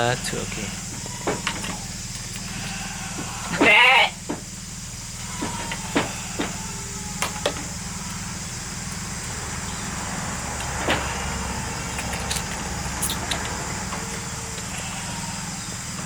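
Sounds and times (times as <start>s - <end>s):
sheep bleating: 0.0s - 4.3s, 5.1s - 8.7s, 14.0s - 15.8s.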